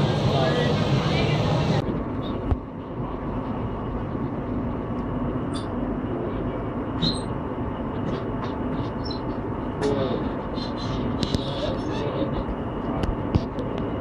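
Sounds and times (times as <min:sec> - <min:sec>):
train coach rumbling: 0:00.0 - 0:14.0.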